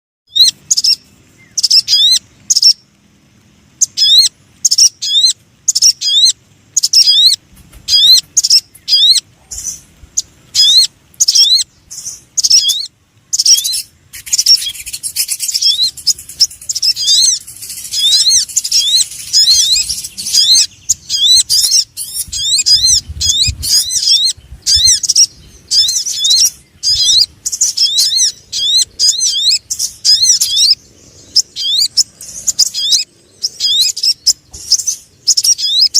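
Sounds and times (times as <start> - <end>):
bird lure call chirps: 3.8 - 30.8.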